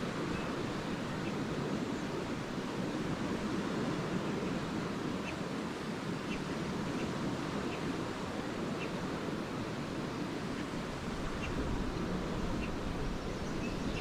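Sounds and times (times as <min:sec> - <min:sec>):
waves washing onto beach: 0:00.0 - 0:14.0
faint bird chirps: 0:12.5 - 0:14.0.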